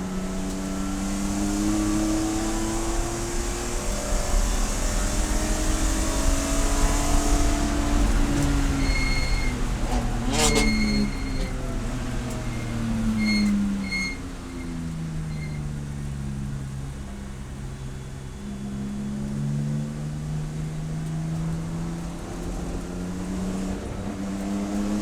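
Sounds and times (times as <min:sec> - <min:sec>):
race car engine running: 0:00.0 - 0:25.0
short high squeal-like tones: 0:08.1 - 0:15.8.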